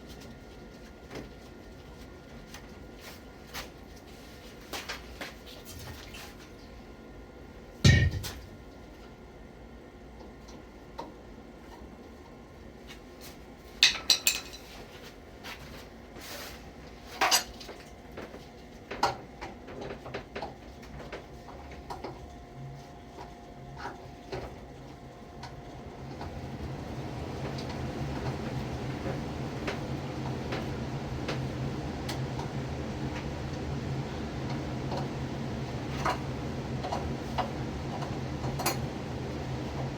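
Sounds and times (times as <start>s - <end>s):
steady low hum: 0.0s - 39.9s
metal tools clinking and clanking: 13.8s - 14.7s.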